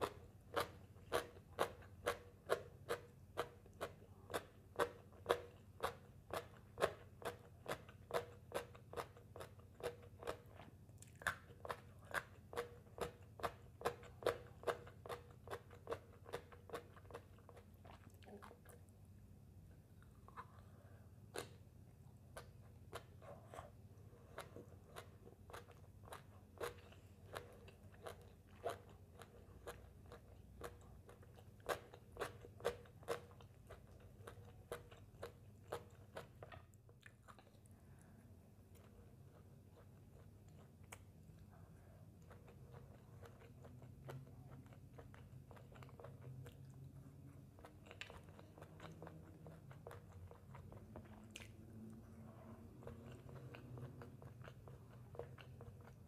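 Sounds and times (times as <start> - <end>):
crunchy chewing: 42.2 - 52.0, 52.6 - 56.0.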